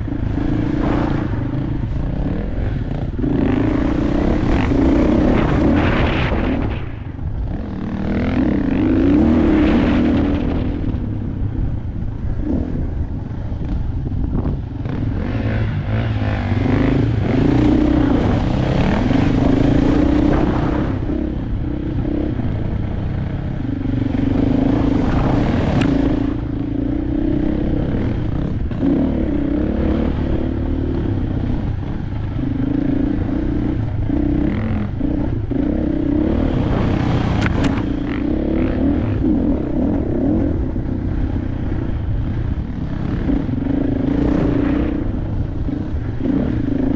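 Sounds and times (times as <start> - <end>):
rushing noise: 0.0 - 12.2
dirt bike engine revving: 0.0 - 46.9.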